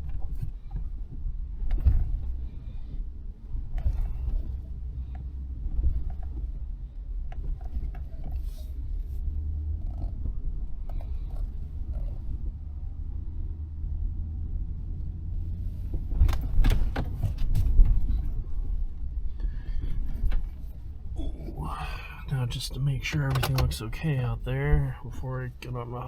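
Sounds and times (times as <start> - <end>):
truck engine low rumble: 0.0 - 26.0
knocks and rattles over bumps: 15.9 - 18.9, 23.1 - 24.0.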